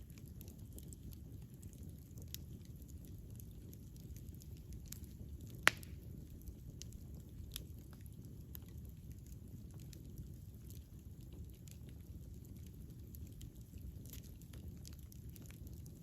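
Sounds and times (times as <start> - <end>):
campfire crackles: 0.0 - 16.0
campfire rumble: 0.0 - 16.0
loud sharp fire pop: 5.7 - 6.0.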